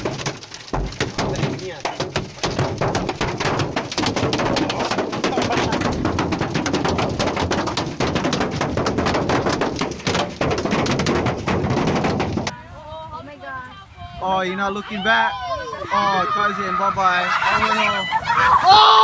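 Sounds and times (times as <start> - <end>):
hail pelting a hard surface: 0.0 - 12.5.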